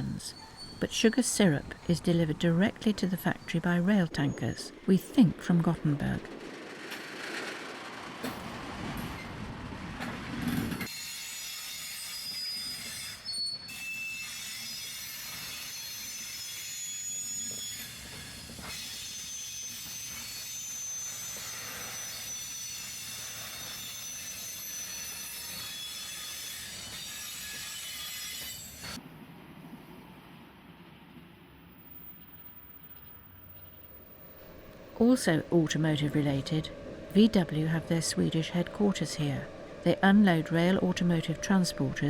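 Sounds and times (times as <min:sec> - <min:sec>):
train wheels squealing on rails: 0:00.0 - 0:02.0, 0:10.4 - 0:29.0
low rolling rumble: 0:34.2 - 0:42.0.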